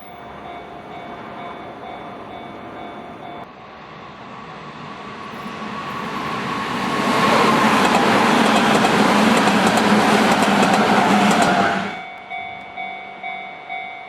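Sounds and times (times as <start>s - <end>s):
electric train passing: 0.0s - 14.0s.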